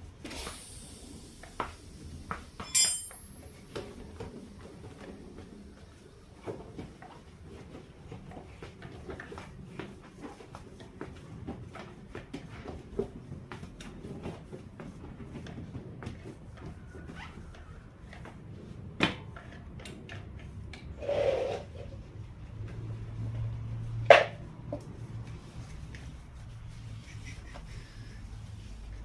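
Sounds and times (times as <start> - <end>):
hand tools clicking and knocking: 2.6 - 3.6.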